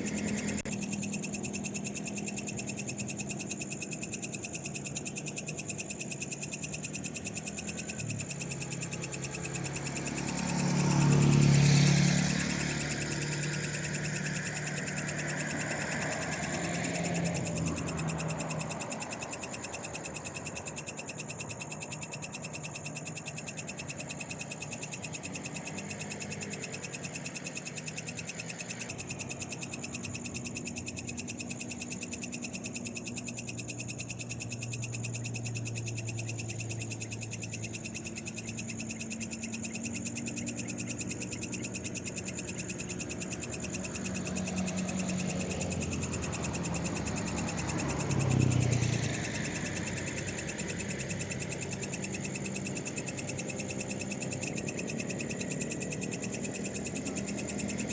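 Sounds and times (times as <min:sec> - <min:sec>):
frogs calling: 0:00.0 - 0:57.9
vehicle passing: 0:07.6 - 0:20.4, 0:39.0 - 0:57.9.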